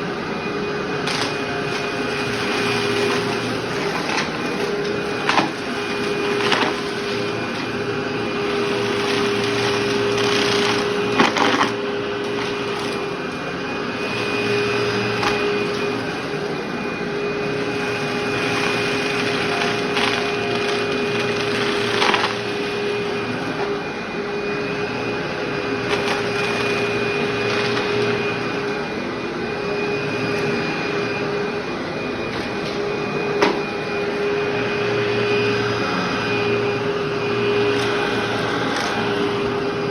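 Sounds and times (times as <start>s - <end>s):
vacuum cleaner running: 0.0s - 39.9s
debris clicking in vacuum: 1.0s - 13.1s, 17.9s - 23.3s.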